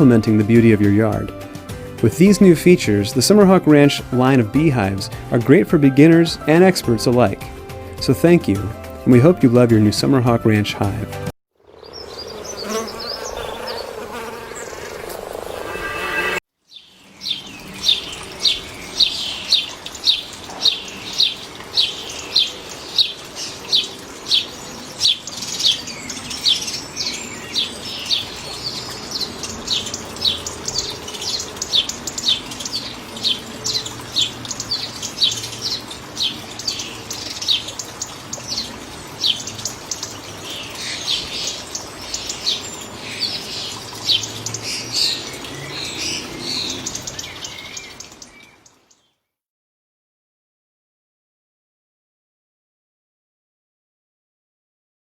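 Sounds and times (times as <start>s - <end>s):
bird chirping: 11.7s - 49.2s.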